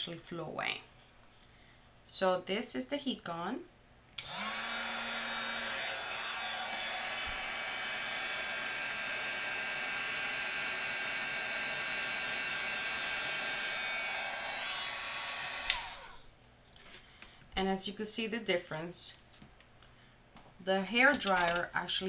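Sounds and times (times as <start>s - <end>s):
heat gun switch click: 4.2s - 4.4s, 15.6s - 16.0s
heat gun blowing whir: 4.2s - 16.3s.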